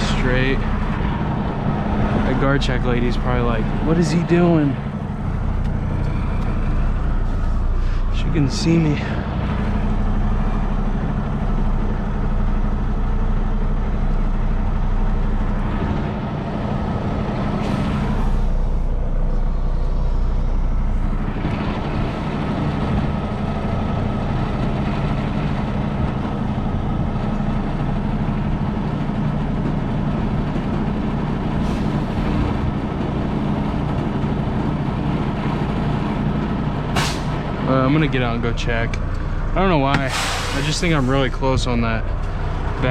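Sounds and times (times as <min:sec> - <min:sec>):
diesel truck engine running: 0:00.0 - 0:42.9
air brake hisses: 0:37.0 - 0:37.5, 0:40.1 - 0:41.1.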